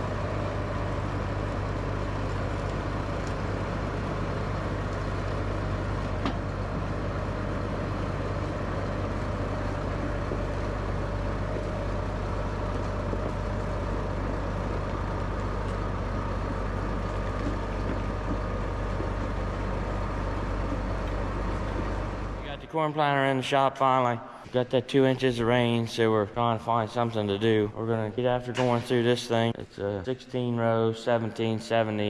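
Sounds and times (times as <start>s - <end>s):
large vehicle engine humming: 0.0s - 23.3s.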